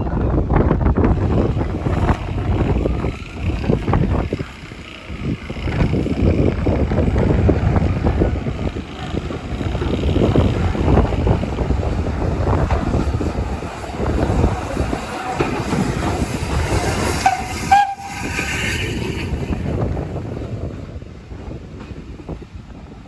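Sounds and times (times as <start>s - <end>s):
train running: 0.0s - 23.0s
wind noise on microphone: 0.0s - 23.0s
train whistle toot: 17.1s - 18.8s.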